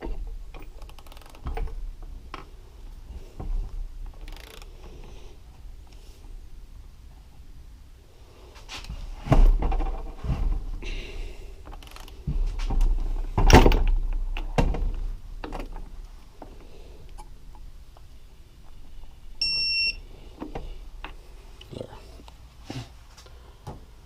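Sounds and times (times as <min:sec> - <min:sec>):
tools and metal parts clunking: 0:11.7 - 0:16.0
short high-pitched beep: 0:19.4 - 0:20.0.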